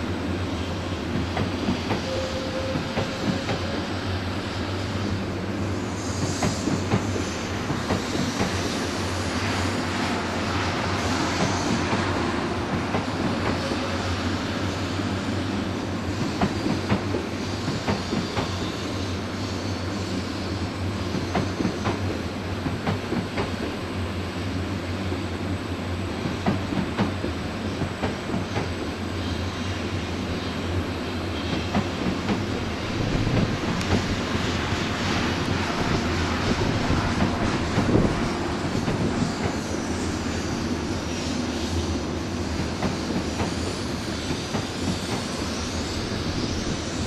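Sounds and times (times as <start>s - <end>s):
train wheels clicking over rail joints: 26.2s - 28.8s, 31.5s - 34.4s, 36.5s - 39.8s, 42.6s - 45.6s.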